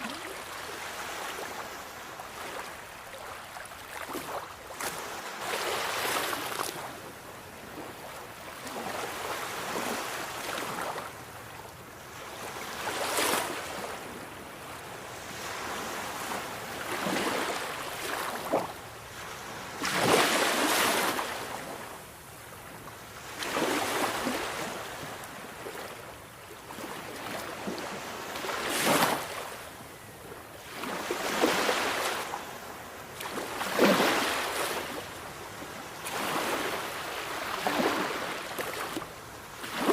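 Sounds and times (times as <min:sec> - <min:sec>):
sea waves breaking: 0:15.4 - 0:21.8, 0:26.7 - 0:29.6, 0:33.2 - 0:35.1, 0:36.0 - 0:39.9.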